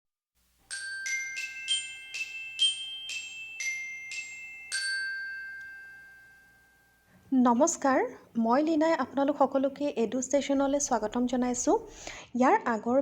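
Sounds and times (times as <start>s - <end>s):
mallet percussion jingle: 0.7s - 7.1s.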